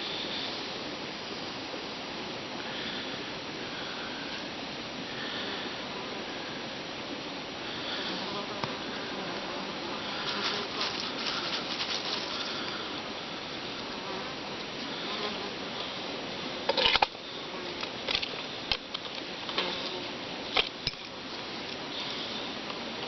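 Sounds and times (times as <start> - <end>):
outdoor buzzing and hissing: 0.0 - 23.0.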